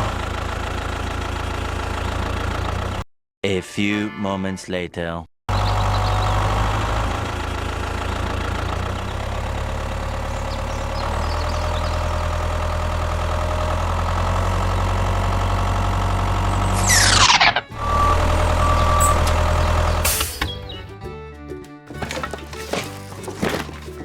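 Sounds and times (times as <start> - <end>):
engine idling: 0.0 - 3.0, 5.5 - 17.0.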